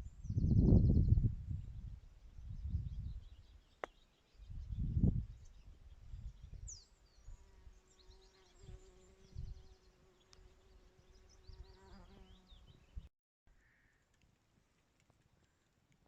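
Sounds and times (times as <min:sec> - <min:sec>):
small birds chirping: 0:00.0 - 0:14.1
insect buzzing: 0:07.2 - 0:12.6.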